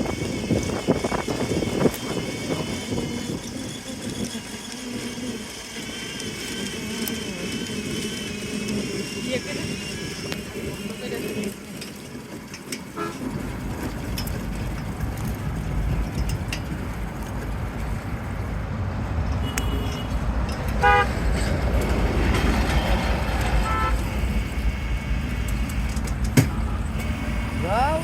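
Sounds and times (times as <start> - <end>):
road traffic rumbling: 0.0 - 28.0
vehicle horn tooting: 12.9 - 13.4, 19.4 - 20.2, 20.8 - 21.2, 22.7 - 28.0.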